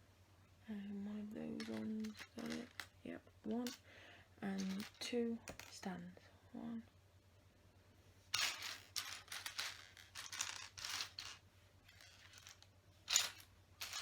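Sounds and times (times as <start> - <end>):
plastic bricks rustling and clattering: 1.6 - 3.8, 4.5 - 5.8, 8.4 - 14.0.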